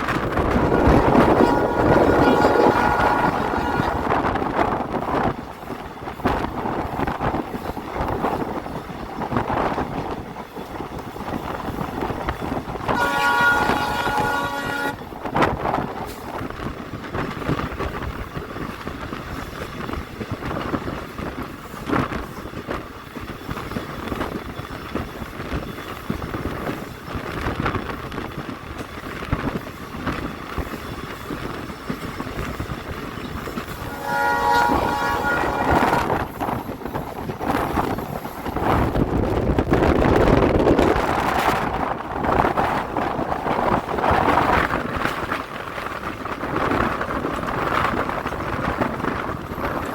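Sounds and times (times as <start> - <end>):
train rumbling on rails: 0.0 - 49.9
locomotive horn blast: 0.5 - 4.3, 12.9 - 15.0, 33.8 - 36.3.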